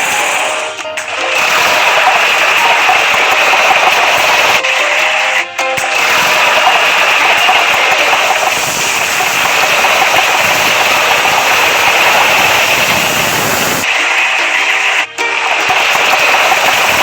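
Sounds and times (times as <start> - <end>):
loud mechanical engine noise: 5.8 - 17.0.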